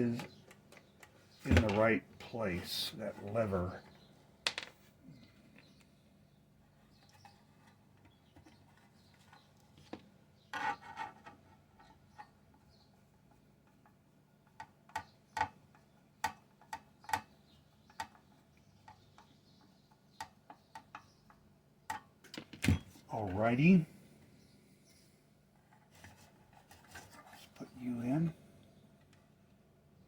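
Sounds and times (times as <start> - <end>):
parts clattering: 0.0 - 3.8, 4.4 - 5.7
small parts clicking and tapping: 4.4 - 4.8.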